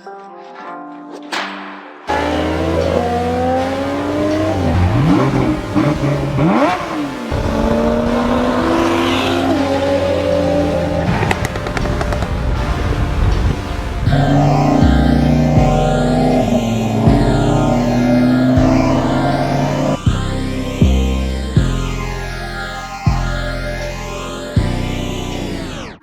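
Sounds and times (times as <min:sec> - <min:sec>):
car engines revving: 0:02.1 - 0:21.8.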